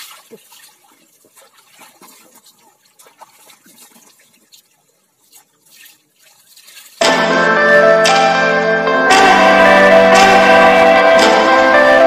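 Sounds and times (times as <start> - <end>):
water splashing and dripping: 0.0 - 8.2
loud music: 7.0 - 12.0.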